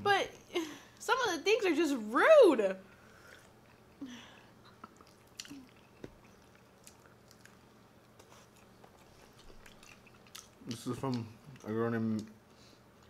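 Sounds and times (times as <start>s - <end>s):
soft mouth clicks and smacks: 4.6s - 12.4s
wet chewing and biting: 4.7s - 12.3s.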